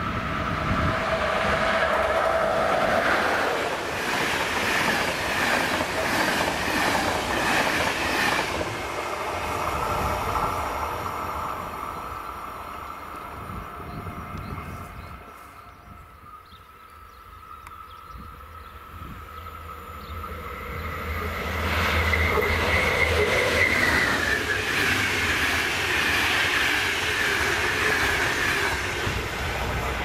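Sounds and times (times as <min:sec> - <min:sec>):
high whining tone: 0:00.0 - 0:04.0
train passing close: 0:00.0 - 0:30.0.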